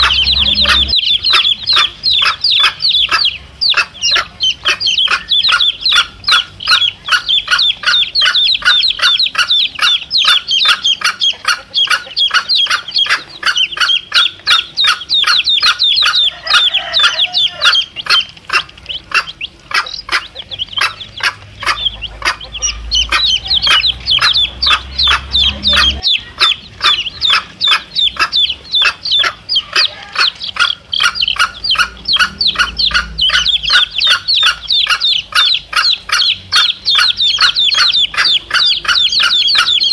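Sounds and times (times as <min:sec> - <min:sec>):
low rumble: 0:00.0 - 0:01.7, 0:31.6 - 0:34.9
chicks peeping: 0:00.0 - 0:39.9
hen clucking: 0:00.0 - 0:39.9.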